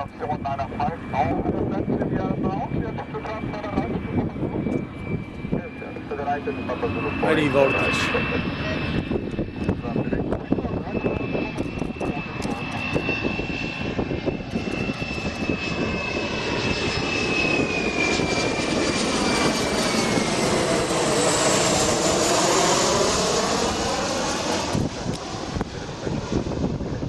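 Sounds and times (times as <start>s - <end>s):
jet airliner passing overhead: 0.0s - 27.0s.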